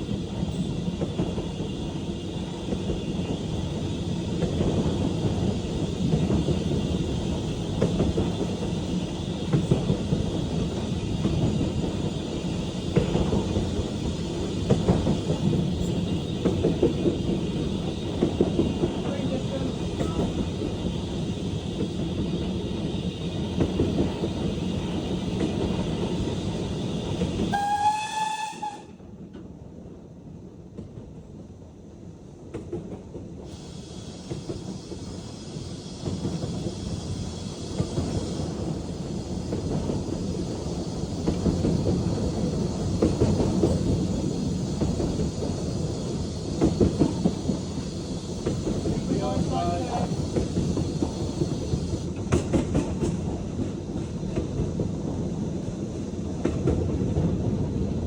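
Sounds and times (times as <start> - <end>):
train wheels clattering on rails: 0.0 - 29.6, 32.1 - 58.0
steam locomotive whistle: 27.4 - 29.0.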